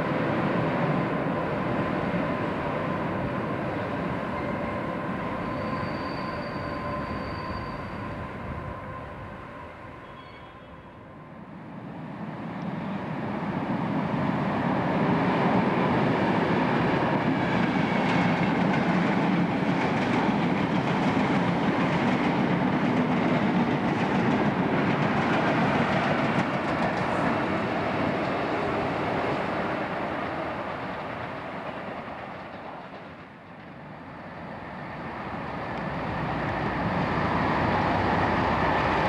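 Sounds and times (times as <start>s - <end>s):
train wheels rumbling on rails: 11.9s - 39.0s.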